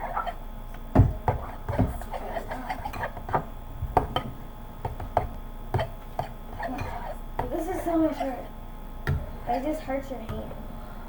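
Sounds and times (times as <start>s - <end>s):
utensil knocking on mixing bowl: 0.9s - 7.6s.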